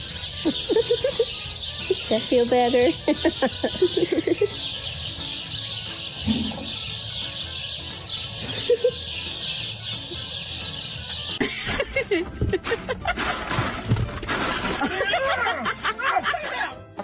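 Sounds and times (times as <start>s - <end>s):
birds chirping: 0.0s - 13.6s
low clucking calls: 0.2s - 7.4s.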